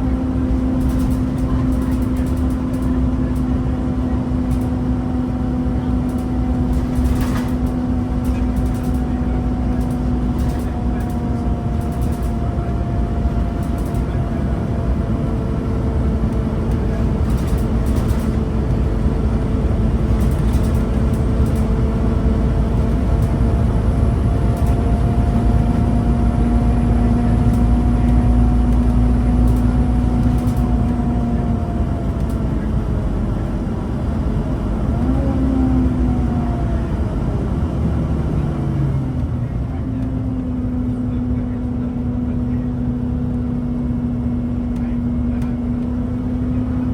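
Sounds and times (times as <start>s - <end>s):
bus diesel engine rumble: 0.0s - 46.9s
drivetrain whine: 0.0s - 46.9s.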